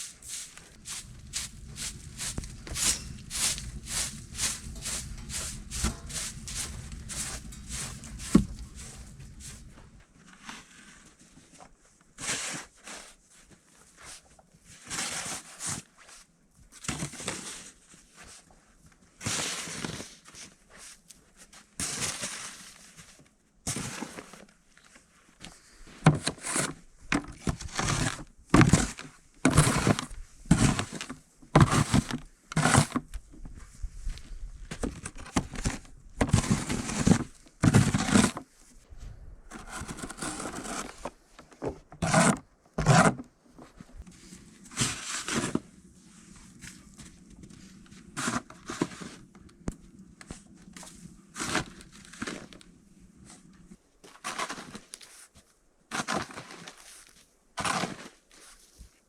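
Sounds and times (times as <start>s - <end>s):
crunching and rustling: 0.0s - 10.0s, 27.2s - 45.6s
dull thuds: 0.4s - 10.0s.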